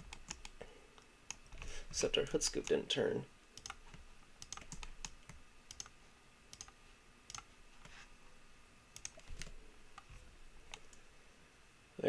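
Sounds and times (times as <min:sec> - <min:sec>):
mouse and keyboard clicks: 0:03.6 - 0:05.9, 0:06.5 - 0:07.5, 0:09.0 - 0:11.0.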